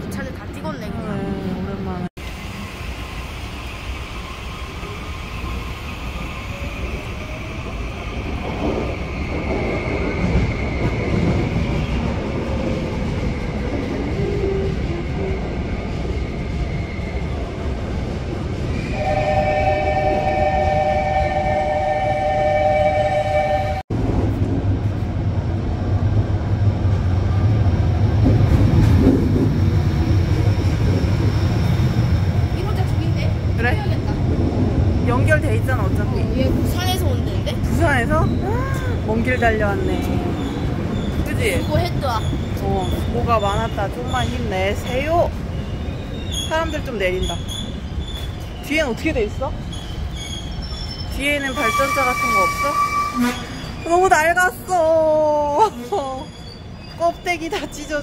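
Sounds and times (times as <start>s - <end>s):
electric locomotive humming: 0.0s - 58.0s
trains running through station: 0.0s - 58.0s
two-note train horn: 19.0s - 23.8s.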